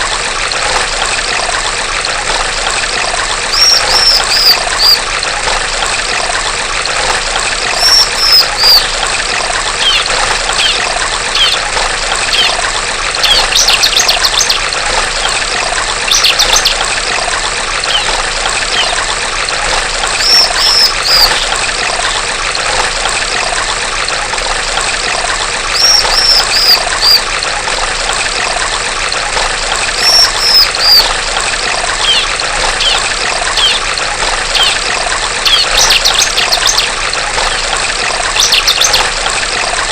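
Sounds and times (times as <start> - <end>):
trickle of flowing water: 0.0 - 39.9
bird calling high falling notes: 3.5 - 5.0, 7.7 - 8.9, 9.8 - 11.7, 17.9 - 19.0, 20.2 - 21.5, 25.8 - 27.2, 30.0 - 31.1, 32.0 - 33.9
bird chattering: 3.5 - 5.0, 7.7 - 8.9, 9.8 - 11.7, 12.3 - 12.6, 13.2 - 14.6, 16.1 - 16.8, 17.9 - 19.0, 20.2 - 21.6, 25.8 - 27.3, 30.0 - 31.1, 32.0 - 37.6, 38.4 - 39.0.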